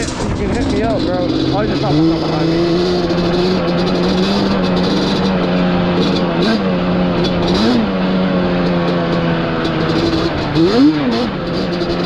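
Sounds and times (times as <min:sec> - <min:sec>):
two-stroke engine revving: 0:00.0 - 0:12.0.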